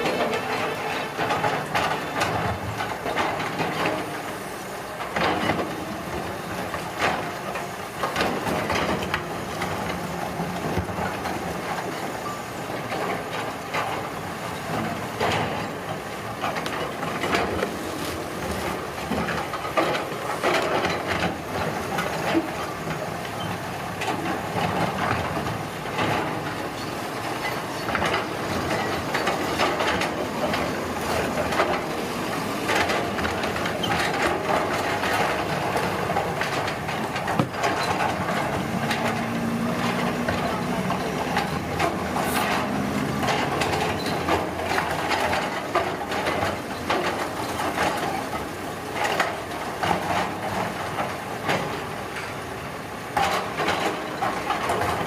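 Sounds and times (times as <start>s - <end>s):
construction machinery din: 0.0s - 55.0s
knocks and scrapes: 36.4s - 45.4s.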